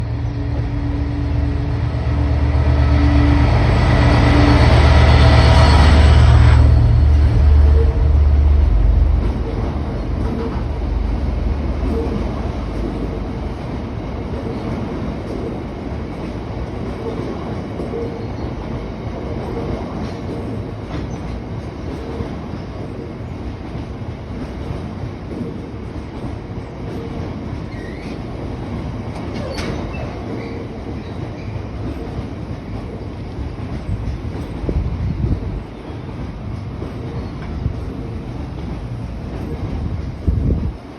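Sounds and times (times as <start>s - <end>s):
locomotive engine: 0.0s - 14.7s
train wagons rumbling: 0.0s - 40.9s
train wheel squeal: 0.2s - 8.2s, 26.9s - 28.4s, 29.2s - 34.8s, 37.0s - 38.0s.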